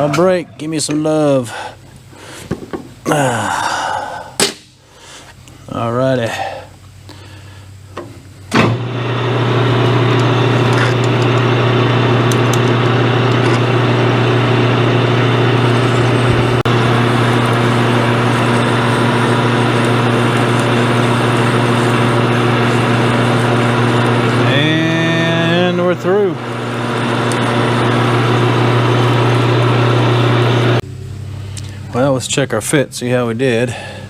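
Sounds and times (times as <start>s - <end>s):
lathe motor humming: 8.6s - 30.8s
lathe switch click: 12.2s - 13.6s.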